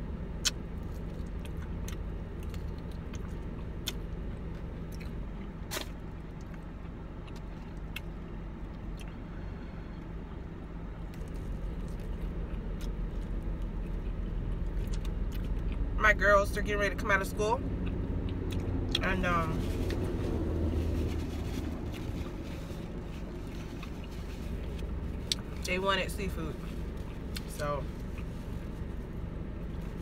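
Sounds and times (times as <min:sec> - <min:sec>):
low hum inside a car: 0:00.0 - 0:30.0
chewing and biting chicken wings: 0:11.2 - 0:15.9, 0:17.7 - 0:19.0.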